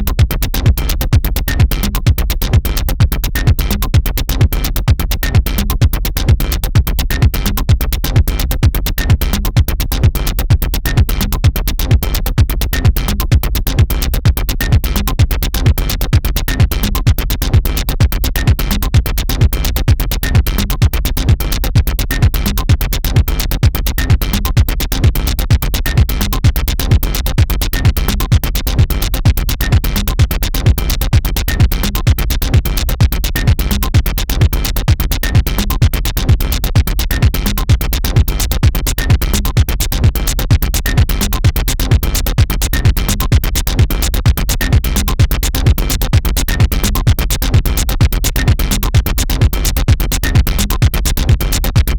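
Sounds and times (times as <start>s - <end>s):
fast drum machine beat: 0.0s - 51.9s
electronic dance music: 31.5s - 51.9s.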